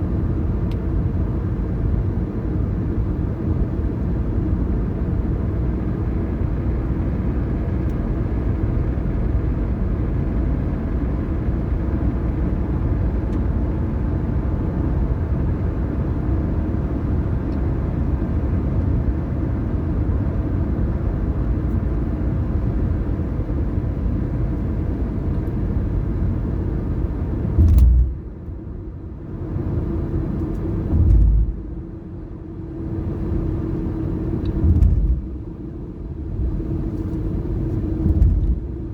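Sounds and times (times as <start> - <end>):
car road and engine rumble: 0.0 - 38.9
low thumps: 27.5 - 28.3, 30.9 - 31.7, 34.6 - 35.4, 38.0 - 38.8.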